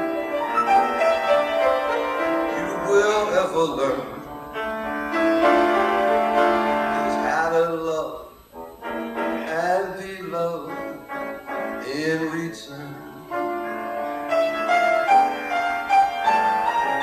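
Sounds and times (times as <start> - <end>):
slow jazz piano: 0.0 - 17.0
man singing: 2.5 - 4.3, 6.7 - 8.4, 9.4 - 13.5.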